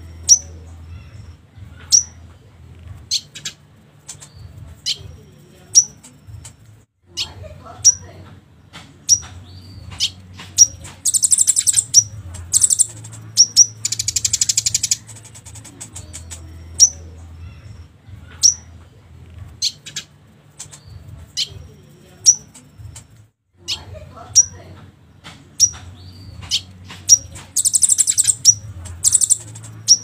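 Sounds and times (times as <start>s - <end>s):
songbird chirps: 0.0s - 30.0s
buzzy bird trills: 10.0s - 17.0s, 26.5s - 30.0s.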